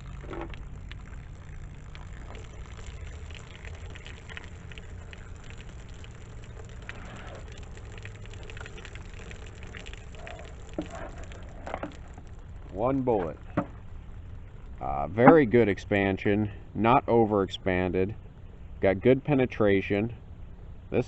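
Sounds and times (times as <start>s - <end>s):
small irregular clicks: 0.0s - 15.4s
water splashing from plastic jug: 0.0s - 15.6s
steady low rumble: 0.0s - 21.0s.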